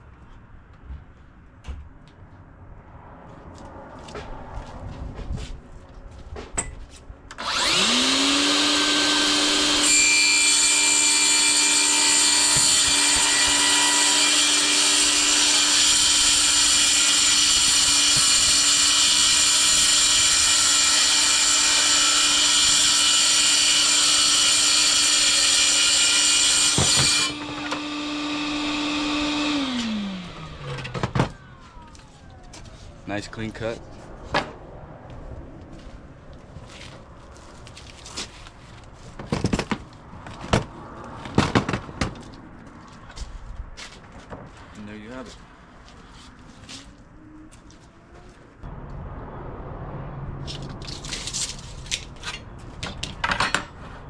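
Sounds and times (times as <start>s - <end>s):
track saw cutting wood: 7.3s - 32.0s
dust extractor running: 26.7s - 30.8s.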